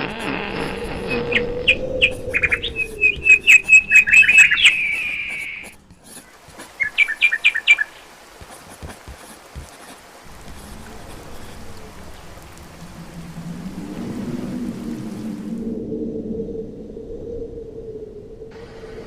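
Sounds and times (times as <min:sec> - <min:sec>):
bird chirping: 0:00.4 - 0:08.1.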